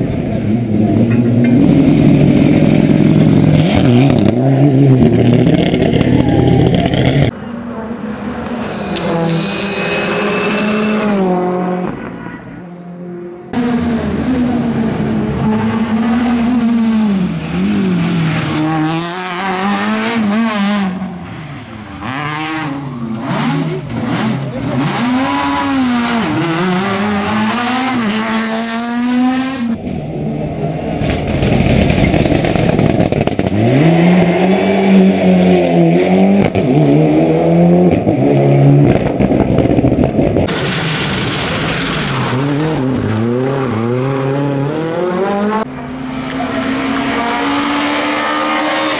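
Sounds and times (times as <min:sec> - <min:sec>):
rally car engines revving: 0:00.0 - 0:48.9
tyre squeal: 0:08.6 - 0:11.2.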